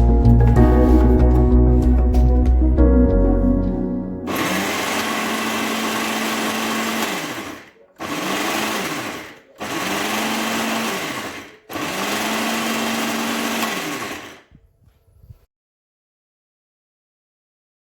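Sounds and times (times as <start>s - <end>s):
appliance motor whirring: 4.3s - 14.6s.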